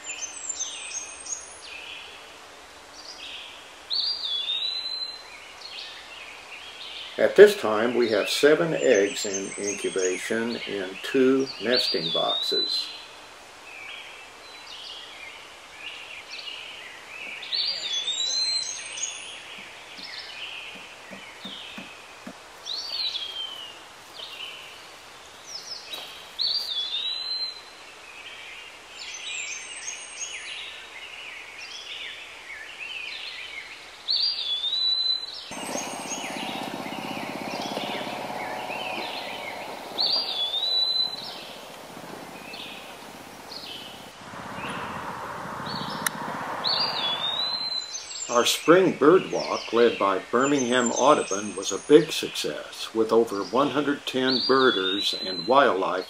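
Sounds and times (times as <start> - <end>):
birds singing and chirping: 0.0 - 2.1, 3.0 - 56.0
low rushing background noise: 35.5 - 48.2.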